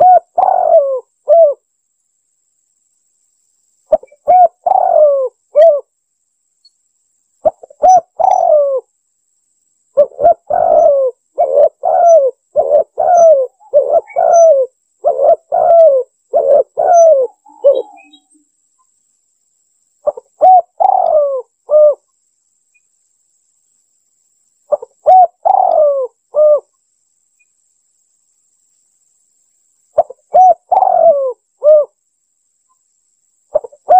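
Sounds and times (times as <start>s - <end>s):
dove cooing: 0.0s - 1.6s, 3.9s - 5.9s, 7.4s - 8.9s, 10.0s - 18.3s, 20.0s - 22.0s, 24.7s - 26.7s, 30.0s - 32.0s, 33.5s - 33.9s.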